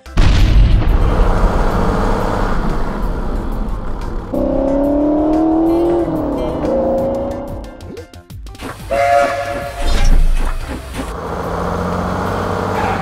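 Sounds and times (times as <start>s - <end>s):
explosion: 0.1s - 5.7s
steam train whistle: 8.8s - 10.2s.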